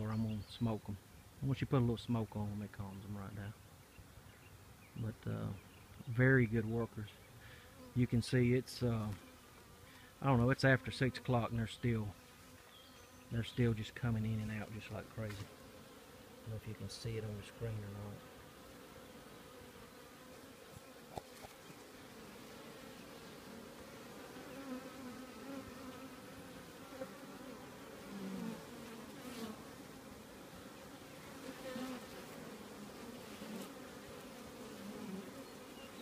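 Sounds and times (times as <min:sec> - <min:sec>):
bees buzzing: 0:05.2 - 0:36.0
single bee buzzing close: 0:07.5 - 0:08.2, 0:09.0 - 0:13.6, 0:14.3 - 0:36.0.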